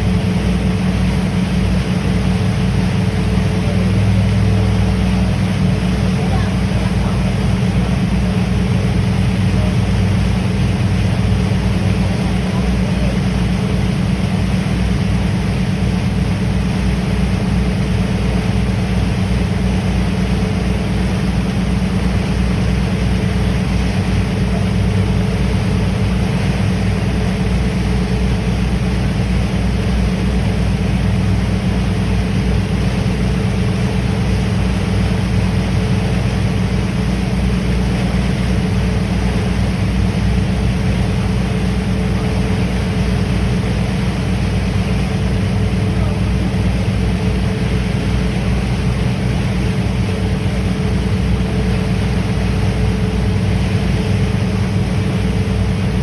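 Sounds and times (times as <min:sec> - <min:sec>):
ship engines droning: 0:00.0 - 0:56.0.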